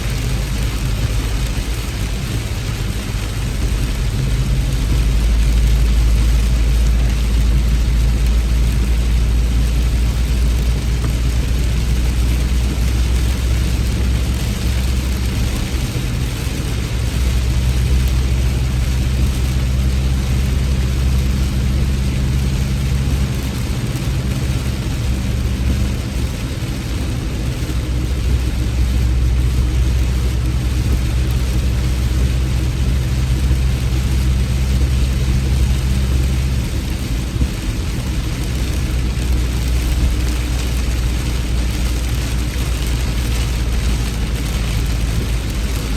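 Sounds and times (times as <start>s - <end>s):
constant low rumble: 0.0s - 45.9s
heavy rain falling: 0.0s - 45.9s.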